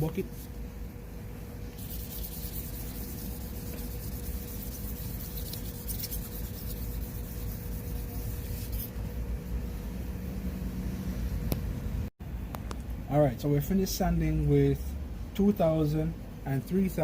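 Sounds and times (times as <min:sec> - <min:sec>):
sandpaper wet-sanding plastic: 0:01.8 - 0:09.0.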